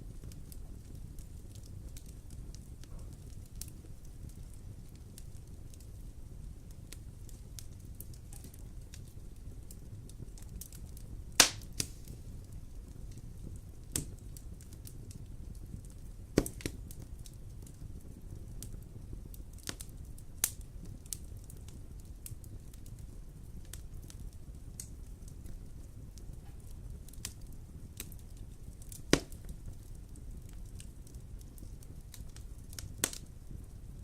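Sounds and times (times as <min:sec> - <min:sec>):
fire crackles and pops: 0:00.0 - 0:34.0
wood fire rumbling: 0:00.0 - 0:34.0.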